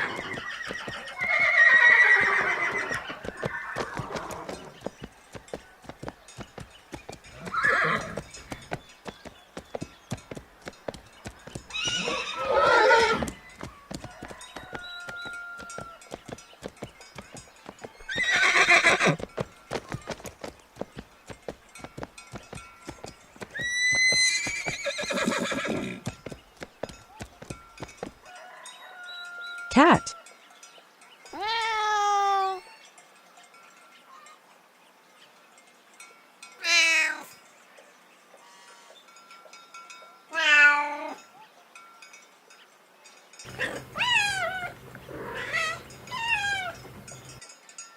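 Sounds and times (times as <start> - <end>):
horse whinnying: 0.0 - 4.6, 7.4 - 8.2, 11.7 - 13.4, 18.1 - 19.2, 23.6 - 26.1, 43.5 - 46.8
horse hooves clip-clopping: 0.0 - 30.1, 43.4 - 47.5.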